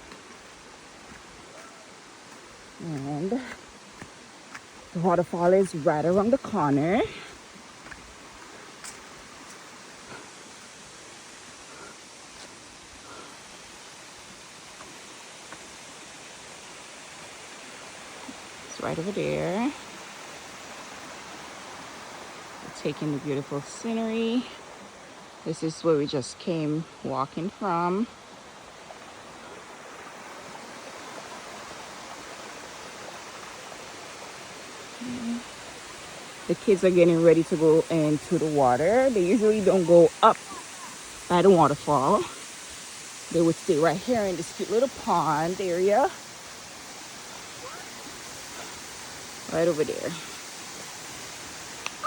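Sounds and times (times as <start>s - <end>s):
waterfall rushing: 0.0s - 25.4s, 28.2s - 52.0s
faint clicks: 51.8s - 52.0s.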